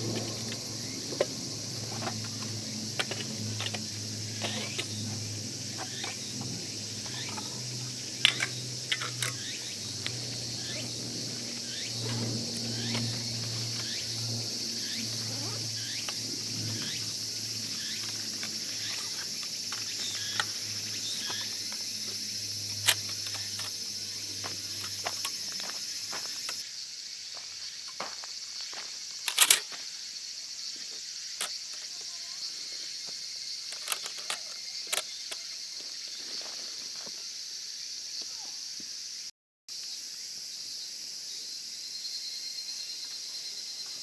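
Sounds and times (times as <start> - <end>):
camp gear clicks and knocks: 0.0 - 26.6, 29.2 - 29.8, 31.4 - 32.0, 33.6 - 37.2
insects shrilling: 0.0 - 39.2.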